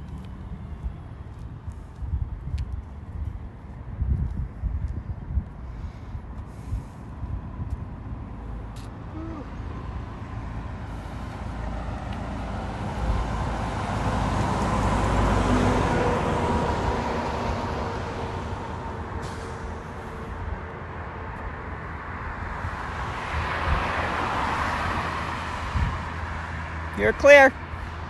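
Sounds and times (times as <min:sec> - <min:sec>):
vehicle approaching: 0:00.0 - 0:28.0
vehicle passing by: 0:05.7 - 0:28.0.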